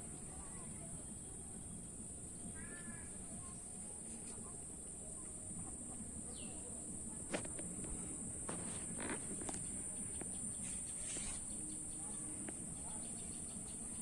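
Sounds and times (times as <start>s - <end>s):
insects droning: 0.0s - 14.0s
short rustles or knocks: 7.3s - 11.5s.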